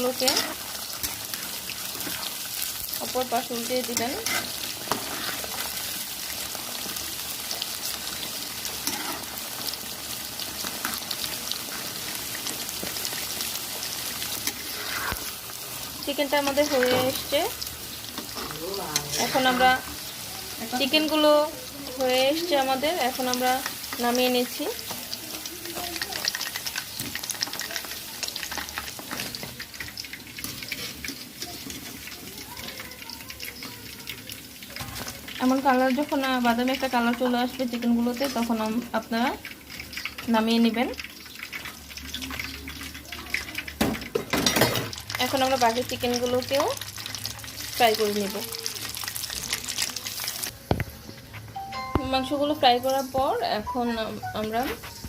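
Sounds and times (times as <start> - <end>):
chicken deep-frying in oil: 0.0 - 55.0
spoon stirring: 0.1 - 6.0.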